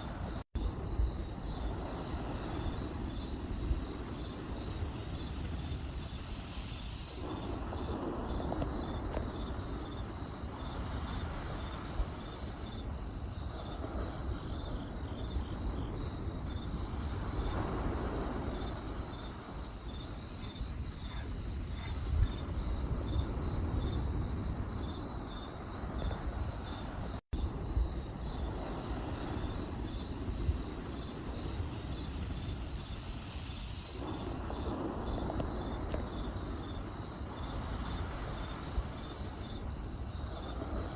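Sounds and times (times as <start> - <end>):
campfire crackling and popping: 0.0 - 40.9
crickets chirping: 0.0 - 40.9.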